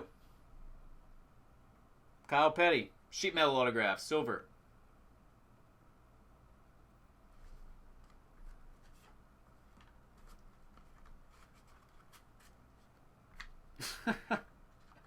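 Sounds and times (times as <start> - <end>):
faint rustling and ticks: 7.3 - 13.6
crinkly packaging scraping: 9.8 - 13.0.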